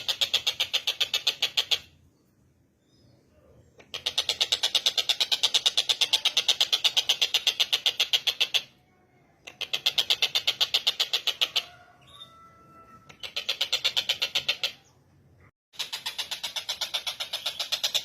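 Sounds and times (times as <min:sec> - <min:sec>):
bird rattling call: 0:00.0 - 0:02.0, 0:03.8 - 0:08.8, 0:09.5 - 0:11.8, 0:13.1 - 0:14.8, 0:15.8 - 0:18.0.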